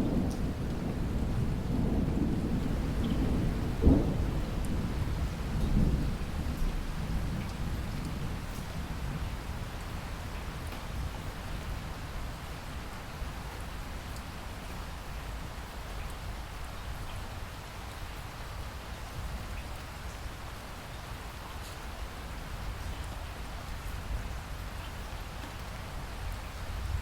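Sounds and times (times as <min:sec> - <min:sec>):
steady rain hiss: 0:00.0 - 0:27.0
raindrop ticks: 0:00.2 - 0:00.8, 0:03.0 - 0:03.2, 0:07.4 - 0:08.8, 0:09.8 - 0:10.9.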